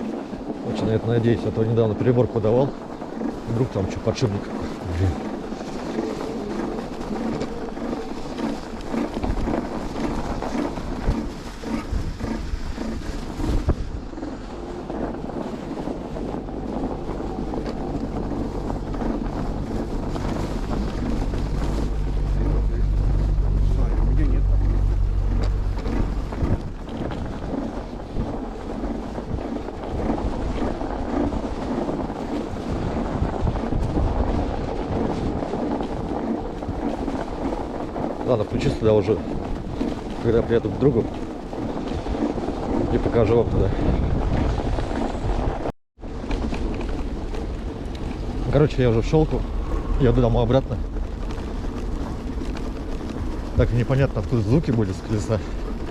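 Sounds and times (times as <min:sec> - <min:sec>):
hiss of wind and snow: 0:00.0 - 0:43.2
wind buffeting microphone: 0:00.0 - 0:55.9
low thumps: 0:16.4 - 0:29.4
rhythmic wheel rubbing: 0:16.8 - 0:31.2.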